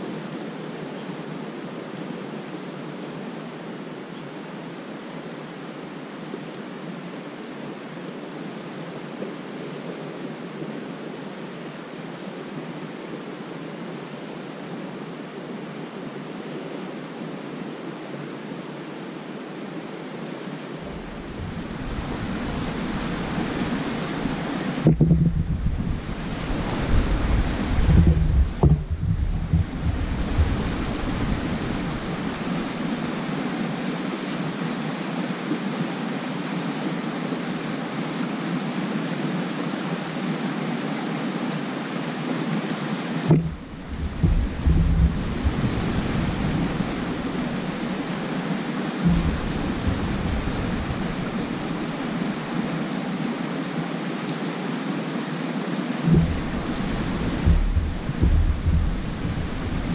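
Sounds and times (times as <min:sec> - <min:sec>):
wind and water rushing: 0:00.0 - 0:59.9
wind buffeting microphone: 0:20.8 - 0:33.2, 0:43.3 - 0:52.7, 0:56.0 - 0:59.9.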